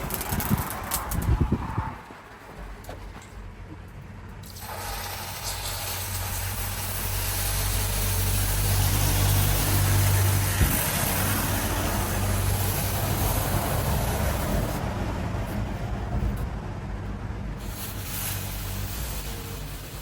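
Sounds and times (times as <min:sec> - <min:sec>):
workshop machine humming and hissing: 0:04.4 - 0:16.4, 0:17.5 - 0:20.0.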